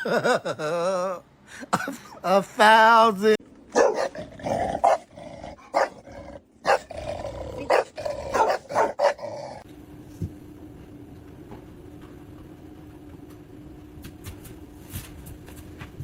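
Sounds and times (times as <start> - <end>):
dog barking sharply: 3.7 - 4.2, 5.7 - 6.0, 7.7 - 9.2
dog growling: 4.1 - 9.6.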